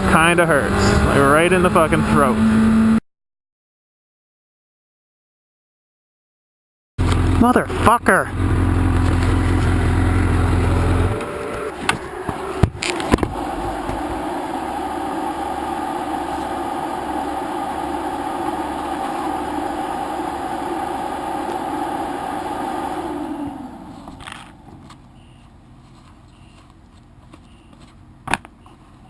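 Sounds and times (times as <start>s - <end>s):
motorcycle engine: 0.0s - 3.0s, 7.0s - 25.8s
steady rushing noise: 12.0s - 25.0s.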